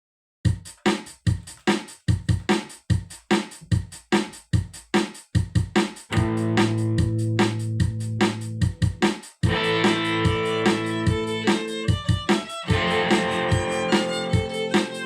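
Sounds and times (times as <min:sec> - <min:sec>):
steady drum beat: 0:00.5 - 0:15.0.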